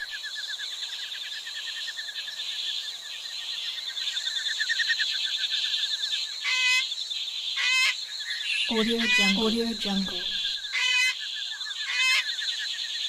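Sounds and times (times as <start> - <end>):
insects chirring: 0.0 - 13.0
short clear calls: 8.7 - 11.1.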